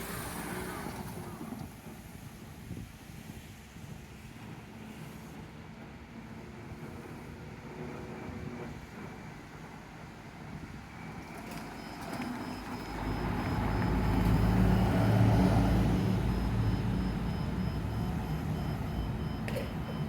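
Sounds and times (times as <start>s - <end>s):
electric train rumble: 0.0s - 20.0s
thin steady high tone: 11.1s - 20.0s.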